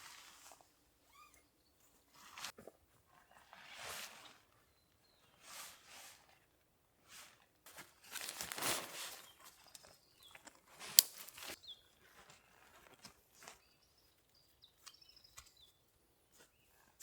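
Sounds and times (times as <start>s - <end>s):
rustling crunching bursts: 8.0s - 9.2s.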